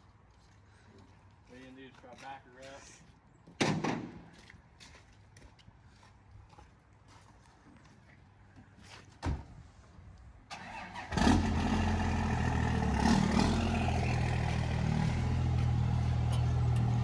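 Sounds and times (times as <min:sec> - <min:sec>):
truck engine cranking and idling: 0:10.5 - 0:17.0.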